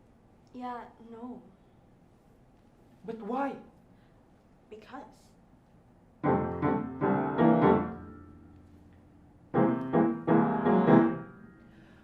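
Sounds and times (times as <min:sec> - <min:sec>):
piano playing chords: 0:06.2 - 0:08.7, 0:09.4 - 0:12.0.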